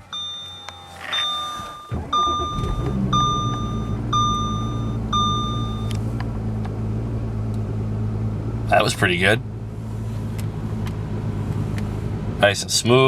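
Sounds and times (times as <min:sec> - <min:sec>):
dashboard warning chime beeping: 0:00.0 - 0:06.1
starter motor turning: 0:00.0 - 0:07.7
diesel engine starting and idling: 0:00.0 - 0:13.0.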